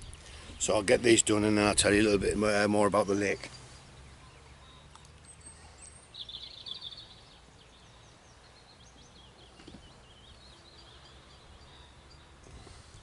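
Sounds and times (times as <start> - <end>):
quiet outdoor ambience: 0.0 - 13.0
small bird singing: 2.9 - 13.0.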